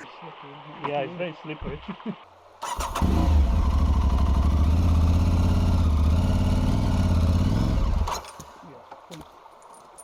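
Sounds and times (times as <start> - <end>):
electric starter cranking: 2.6 - 3.6
motorcycle engine idling: 2.6 - 8.1.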